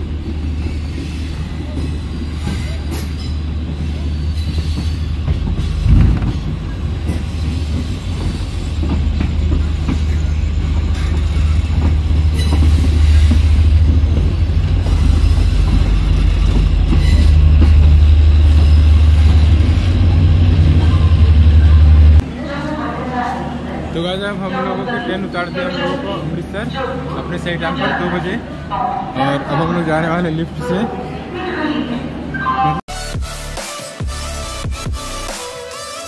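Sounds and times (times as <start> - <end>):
train rumbling along track: 0.0 - 32.4.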